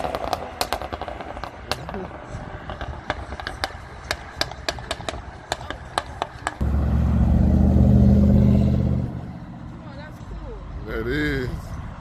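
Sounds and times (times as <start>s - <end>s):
car engine accelerating away: 6.6s - 9.7s.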